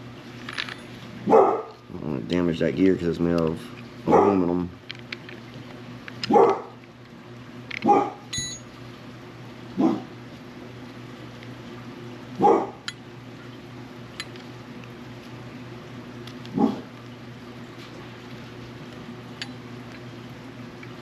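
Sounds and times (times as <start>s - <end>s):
steady low hum: 0.0s - 21.0s
dog barking: 1.3s - 1.7s, 4.1s - 4.4s, 6.3s - 6.8s, 7.8s - 8.3s, 9.8s - 10.1s, 12.4s - 12.8s, 16.5s - 16.9s.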